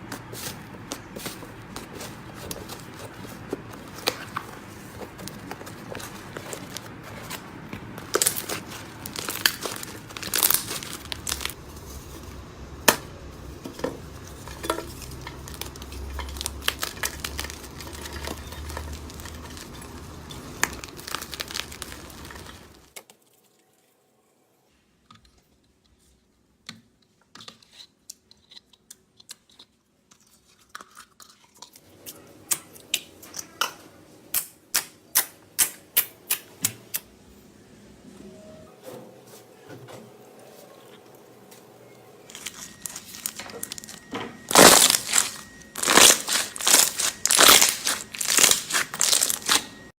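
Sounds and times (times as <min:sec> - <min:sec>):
slime squeezed by hand: 0:44.5 - 0:49.6.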